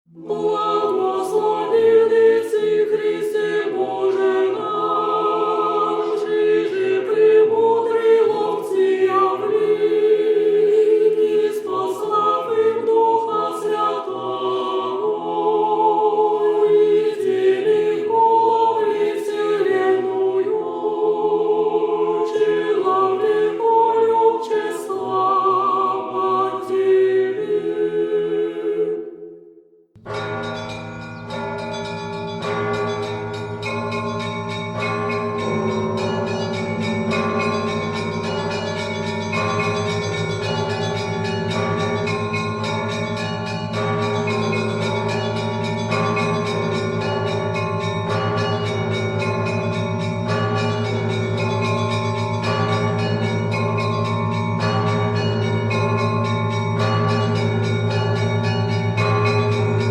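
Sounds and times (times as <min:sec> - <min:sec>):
choir singing a cappella: 0:00.1 - 0:29.5, 0:32.6 - 0:49.7.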